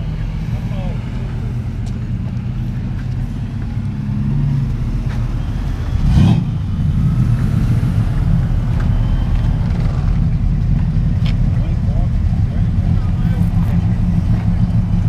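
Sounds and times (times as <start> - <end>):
car engine idling: 0.0 - 15.0
car engine revving: 0.0 - 15.0.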